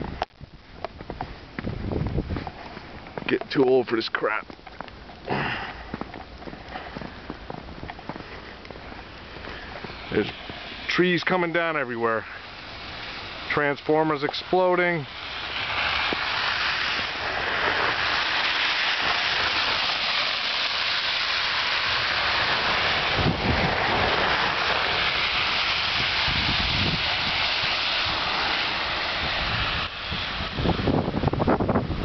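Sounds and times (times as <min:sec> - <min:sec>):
wind gusts on microphone: 0:00.0 - 0:04.6, 0:21.8 - 0:32.0
wind and falling wet snow: 0:00.0 - 0:32.0.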